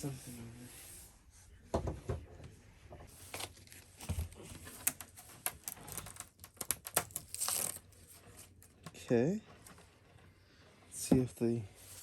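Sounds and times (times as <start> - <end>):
tape and paper crinkling: 3.2 - 8.7
tape ripping: 4.8 - 7.9.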